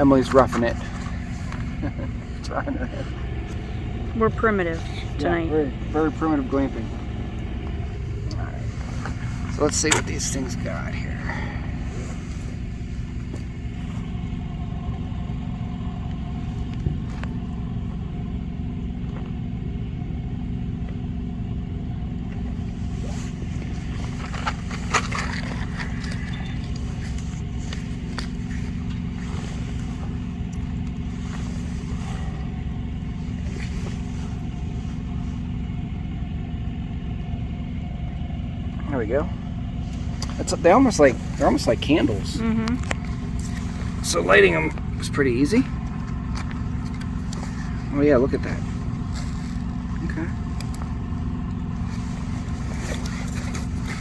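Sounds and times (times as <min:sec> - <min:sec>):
generator humming: 0:00.0 - 0:54.0.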